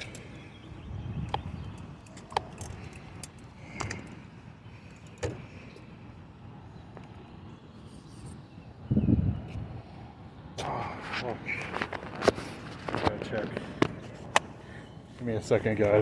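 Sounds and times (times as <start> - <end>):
bicycle clicks and rattles: 1.2 - 4.2.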